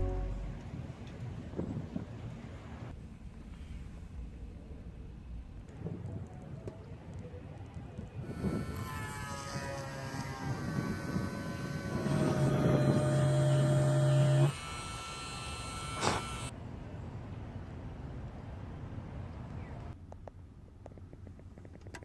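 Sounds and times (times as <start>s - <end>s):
tones falling in pitch: 0.0s - 0.6s
small electric motor buzzing: 8.3s - 16.5s.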